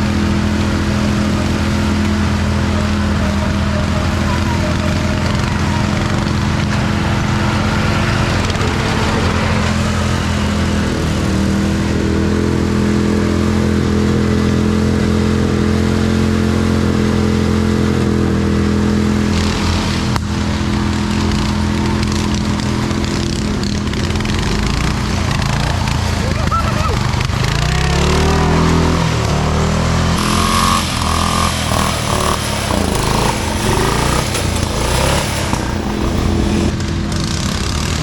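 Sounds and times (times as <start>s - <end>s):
lawn mower engine at high revs: 0.0s - 37.9s.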